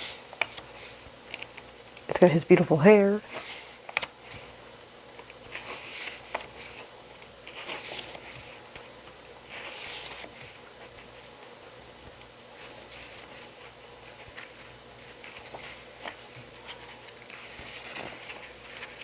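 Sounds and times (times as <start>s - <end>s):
paper pages swishing: 3.3s - 4.5s, 5.4s - 8.7s, 9.4s - 11.3s, 12.6s - 19.0s.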